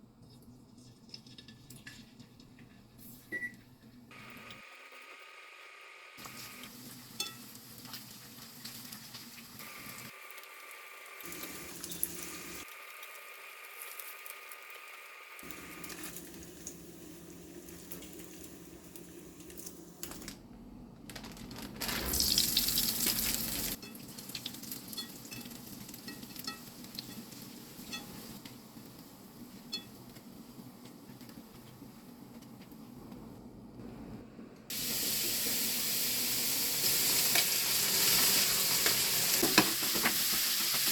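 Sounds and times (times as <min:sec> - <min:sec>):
food sizzling in a frying pan: 0:04.2 - 0:19.7, 0:22.0 - 0:28.5, 0:34.7 - 0:40.9.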